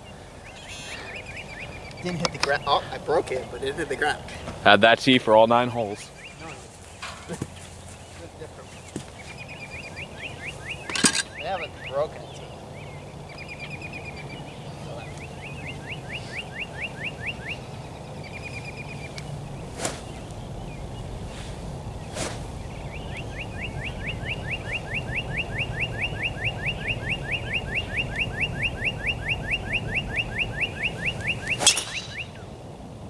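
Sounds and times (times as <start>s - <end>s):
bird calling falling notes: 6.0s - 32.6s
golf club striking ball: 31.5s - 32.4s.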